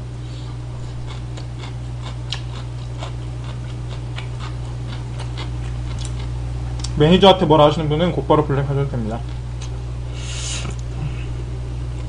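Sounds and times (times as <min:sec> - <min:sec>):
low hum: 0:00.0 - 0:12.0
chewing noodles: 0:00.8 - 0:06.9.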